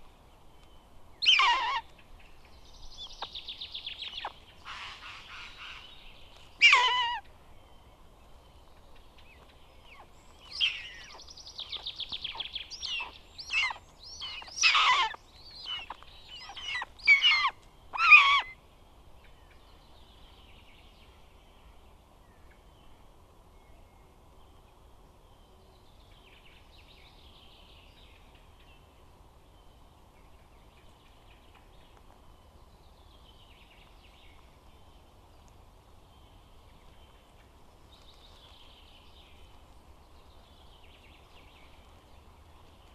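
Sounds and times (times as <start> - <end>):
buzzard calling: 1.2 - 1.9, 6.6 - 7.3, 12.3 - 18.6.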